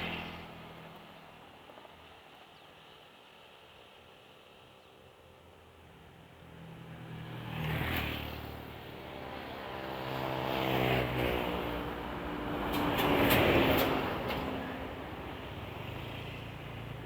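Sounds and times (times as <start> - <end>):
vehicles passing: 0.0 - 1.9, 6.4 - 17.0.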